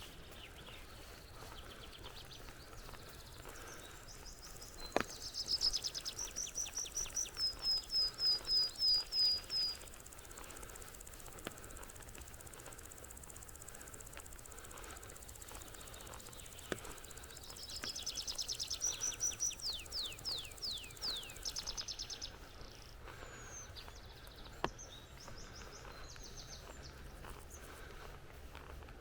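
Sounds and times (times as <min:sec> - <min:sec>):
songbird trilling: 0:00.0 - 0:27.9
sharp ticks: 0:01.9 - 0:22.5.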